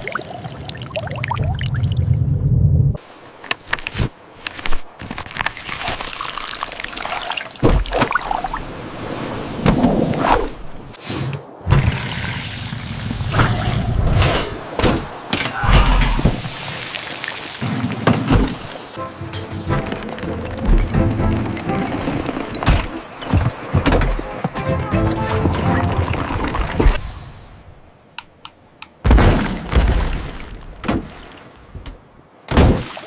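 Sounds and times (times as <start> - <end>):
liquid pouring and trickling: 0.0 - 2.1, 5.3 - 8.6, 25.2 - 27.0.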